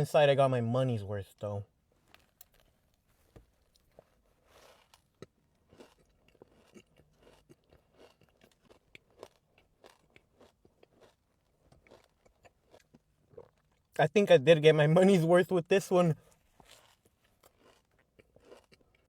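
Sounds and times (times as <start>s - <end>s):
soft chewing crunches: 1.9s - 14.0s, 16.2s - 19.0s.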